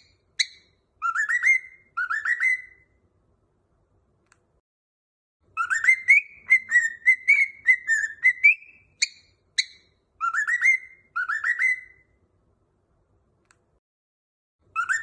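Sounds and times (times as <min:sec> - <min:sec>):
cockatiel sharp chirps: 0:00.0 - 0:02.9, 0:05.6 - 0:12.1, 0:14.7 - 0:15.0
cockatiel whistling a tune: 0:00.0 - 0:03.0, 0:05.6 - 0:12.2, 0:14.7 - 0:15.0.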